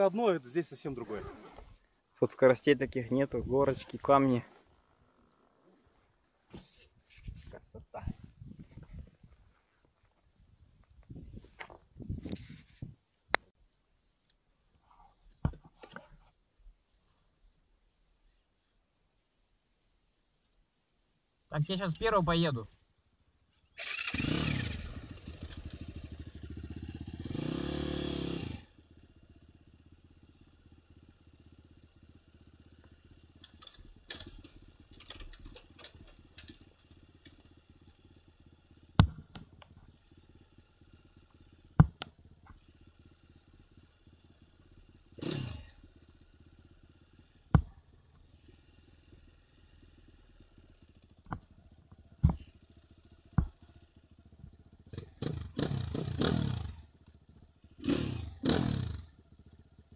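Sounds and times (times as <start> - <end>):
motorcycle engine revving: 23.7 - 59.9.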